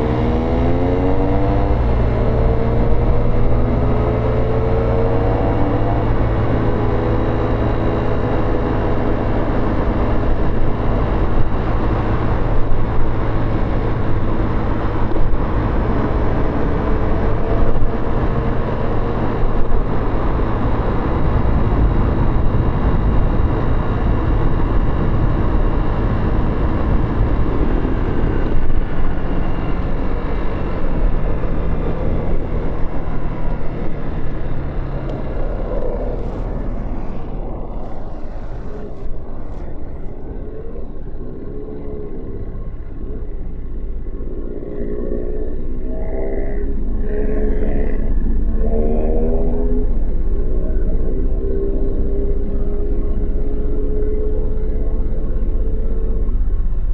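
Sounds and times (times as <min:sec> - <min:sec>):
wind rush: 0:00.0 - 0:44.2
motorcycle engine accelerating: 0:00.0 - 0:56.9
road noise: 0:00.0 - 0:56.9.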